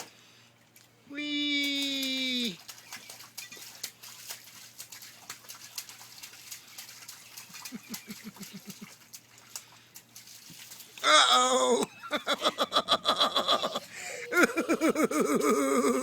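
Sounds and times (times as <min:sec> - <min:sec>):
splashing in muddy puddle: 0:00.8 - 0:12.2.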